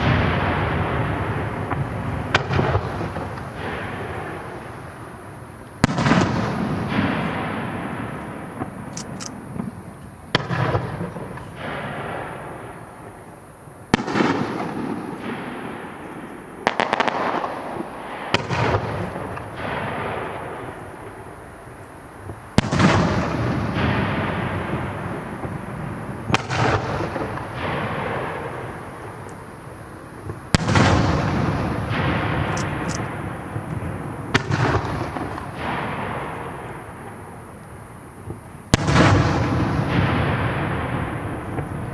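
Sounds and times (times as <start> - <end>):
firework shells booming: 0.0 - 13.3, 22.3 - 37.1
fine firework crackling: 0.0 - 41.9
rolling echo: 22.6 - 37.6.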